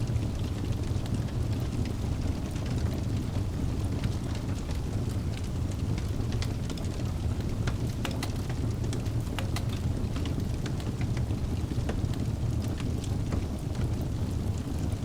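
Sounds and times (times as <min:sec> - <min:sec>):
burning logs crackling and popping: 0:00.0 - 0:15.0
fire flames rumbling: 0:00.0 - 0:15.0.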